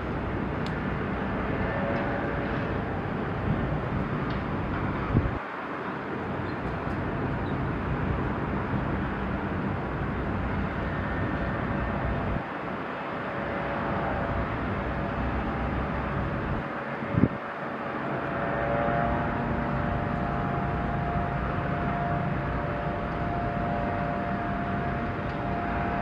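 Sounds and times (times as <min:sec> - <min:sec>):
engine rumble: 0:00.0 - 0:26.0
wind noise: 0:00.0 - 0:26.0
humming tone: 0:18.1 - 0:26.0.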